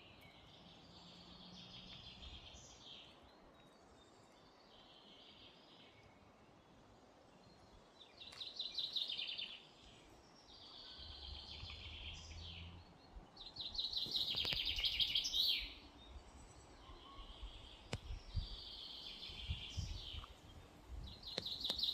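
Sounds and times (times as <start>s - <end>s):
faint outdoor background: 0.0s - 21.9s
bird singing trilled phrases: 10.3s - 21.9s.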